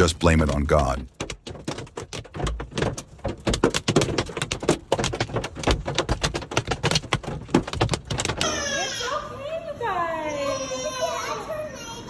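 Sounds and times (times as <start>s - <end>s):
hailstones pelting a car: 0.0s - 8.6s.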